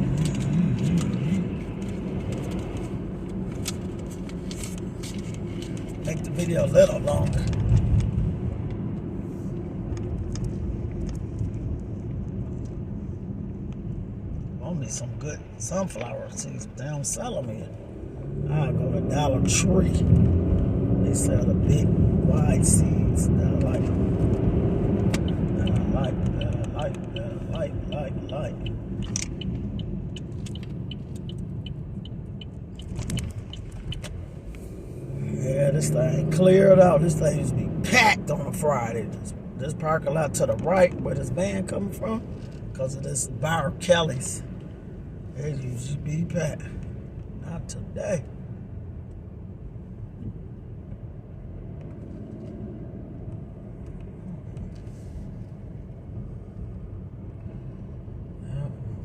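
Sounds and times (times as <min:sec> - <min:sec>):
car road rumble: 0:00.0 - 0:59.0
turn signal relay clicking: 0:25.1 - 0:34.2.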